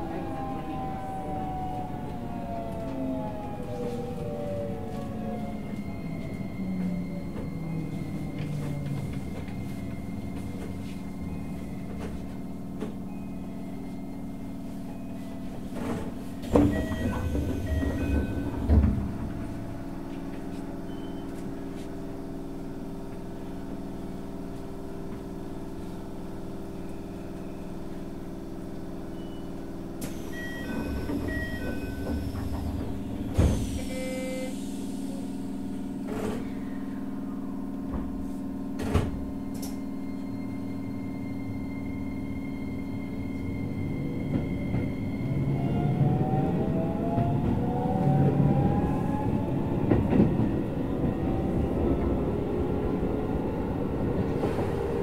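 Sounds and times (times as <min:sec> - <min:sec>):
train traction motor whine: 0:00.0 - 0:22.3
train equipment hum: 0:00.0 - 0:55.0
train door chime: 0:05.4 - 0:21.7, 0:29.0 - 0:34.7.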